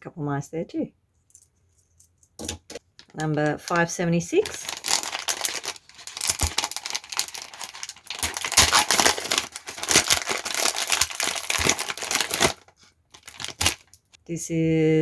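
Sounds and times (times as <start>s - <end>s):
plastic packet crinkling: 2.4s - 14.2s.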